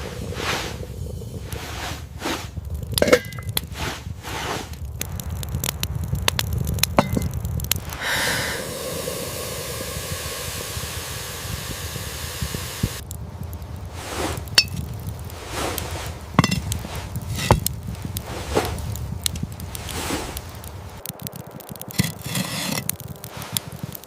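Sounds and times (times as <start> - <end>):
steady hiss: 6.9 - 24.0.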